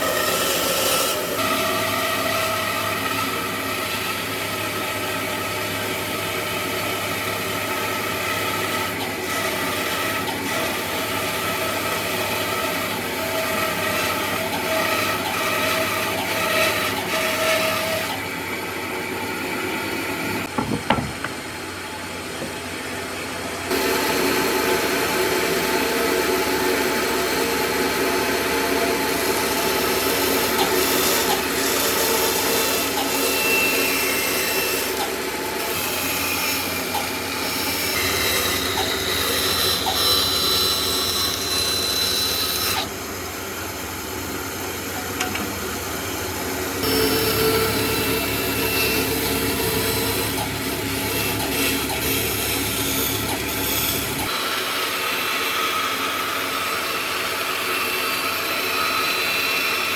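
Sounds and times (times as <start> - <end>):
sharp knocks: 20.5 - 21.4.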